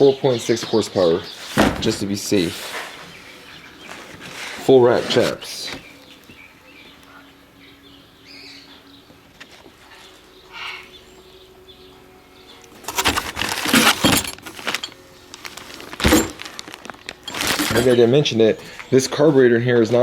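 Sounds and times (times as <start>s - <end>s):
chainsaw handling knocks and rattles: 12.8s - 18.1s.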